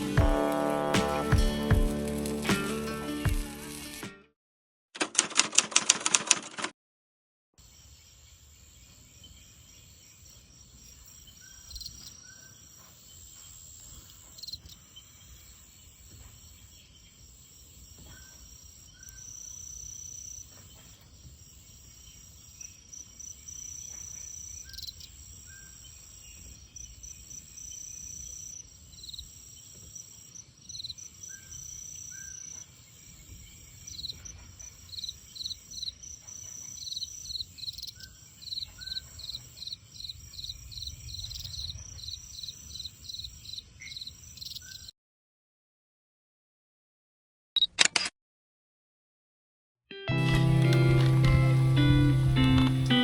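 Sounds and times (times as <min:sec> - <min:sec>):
insect chirps: 0:07.6 - 0:44.9
insects trilling: 0:07.6 - 0:44.9.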